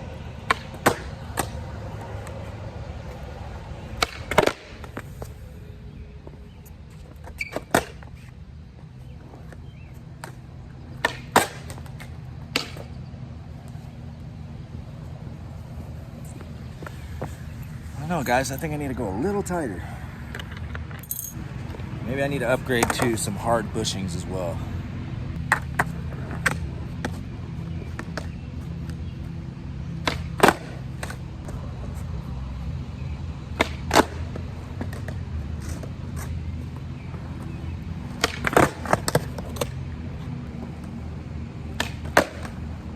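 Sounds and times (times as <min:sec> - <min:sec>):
skateboard wheels rolling on concrete: 0:00.0 - 0:42.9
skateboard clacking on ground: 0:00.4 - 0:02.4, 0:03.0 - 0:05.4, 0:07.1 - 0:08.4, 0:10.2 - 0:12.9, 0:22.8 - 0:23.3, 0:25.5 - 0:27.2, 0:30.0 - 0:31.6, 0:33.6 - 0:36.3, 0:38.1 - 0:39.8, 0:41.7 - 0:42.8.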